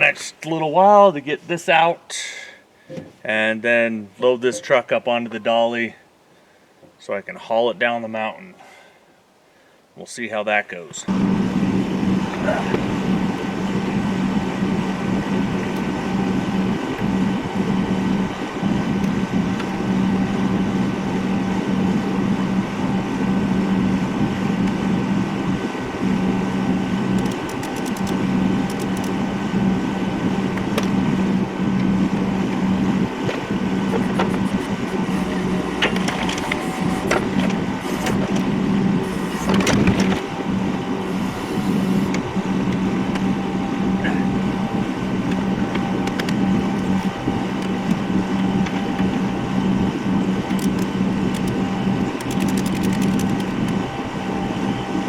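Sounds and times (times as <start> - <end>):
motor humming: 11.1 - 55.0.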